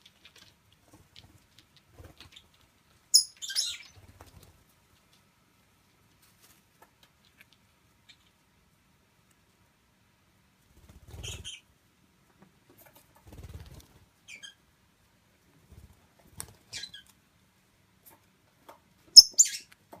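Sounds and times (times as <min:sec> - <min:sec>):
parakeets pattering on surface: 0:00.0 - 0:02.8
parakeet chirps: 0:02.2 - 0:04.0, 0:11.2 - 0:11.7, 0:14.3 - 0:14.6, 0:19.1 - 0:19.7
parakeet high-pitched squeak: 0:03.1 - 0:03.9, 0:19.2 - 0:19.7.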